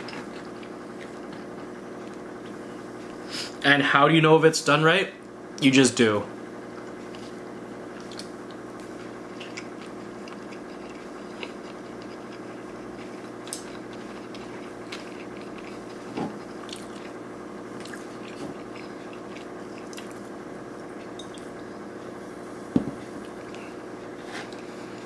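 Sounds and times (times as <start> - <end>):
chewing with mouth clicks: 0.0 - 2.3, 6.8 - 21.7
steady background hum: 0.0 - 25.0.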